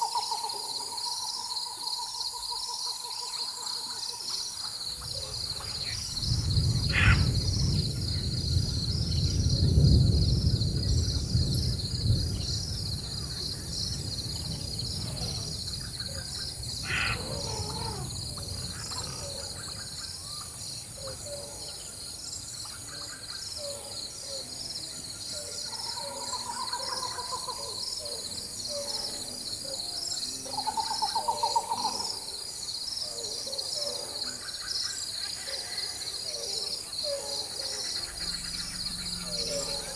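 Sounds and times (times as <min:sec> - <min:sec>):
bird calls: 0:00.0 - 0:09.4, 0:15.0 - 0:24.5, 0:33.0 - 0:39.9
insect chorus: 0:00.0 - 0:39.9
distant thunder rumbling: 0:05.0 - 0:21.8, 0:37.8 - 0:39.9.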